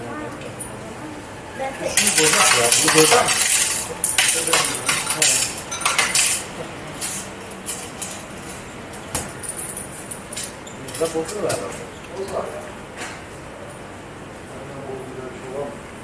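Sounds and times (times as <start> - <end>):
coins clinking against metal: 1.9 - 11.3.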